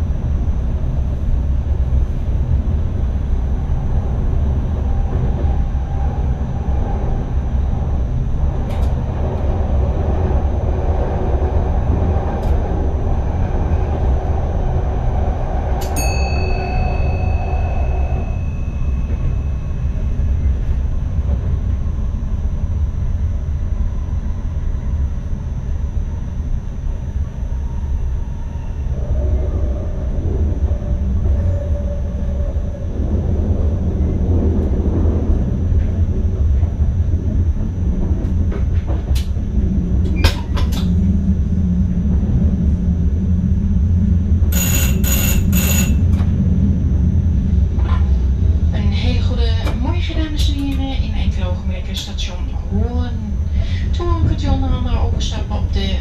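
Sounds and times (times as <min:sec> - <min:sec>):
train wheels rumbling: 0:00.0 - 0:25.4, 0:26.0 - 0:56.0
high ringing tones: 0:15.8 - 0:20.8, 0:44.5 - 0:46.2.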